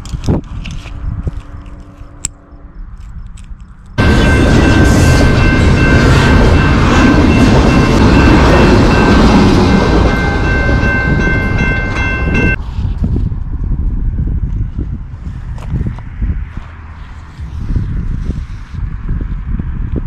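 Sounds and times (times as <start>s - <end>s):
train passing on tracks: 0.8s - 12.9s.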